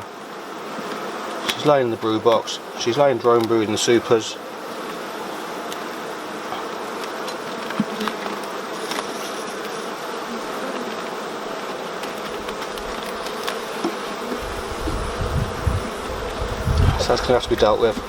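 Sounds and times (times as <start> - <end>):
honeybees buzzing: 0.0 - 18.0
hive handling clicks: 0.6 - 15.2.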